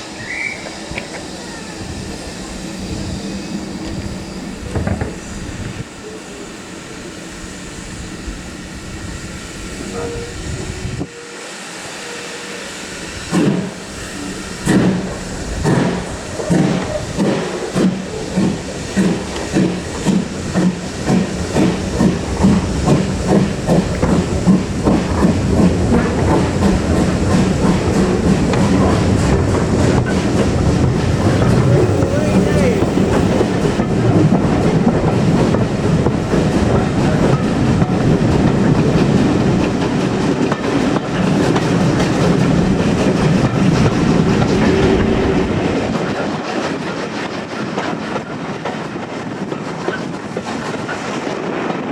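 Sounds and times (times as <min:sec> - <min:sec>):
steam locomotive exhaust beats: 0:00.0 - 0:51.9
steam locomotive hissing: 0:00.0 - 0:51.9.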